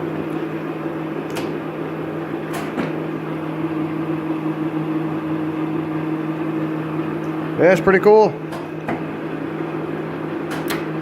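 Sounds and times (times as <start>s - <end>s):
lathe motor and gearbox humming: 0.0s - 11.0s.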